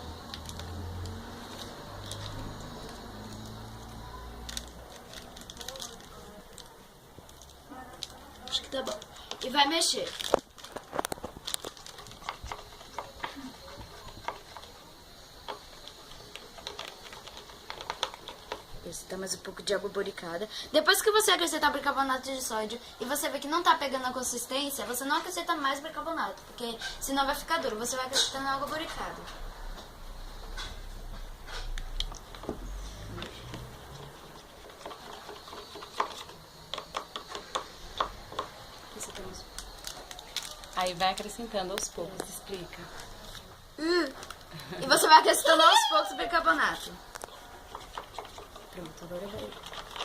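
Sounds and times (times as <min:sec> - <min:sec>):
spatula stirring slime: 0:00.0 - 0:29.1, 0:31.4 - 0:41.3, 0:46.3 - 0:50.0
stick scraping a container: 0:31.4 - 0:38.2.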